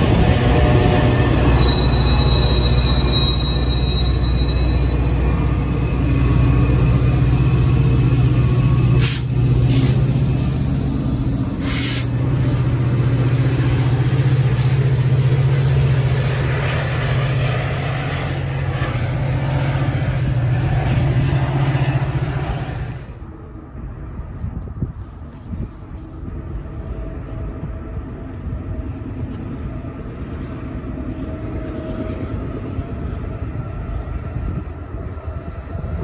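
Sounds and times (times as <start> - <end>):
diesel train engine drone: 0.0 - 36.0
air hissing: 9.0 - 10.1, 11.5 - 12.2.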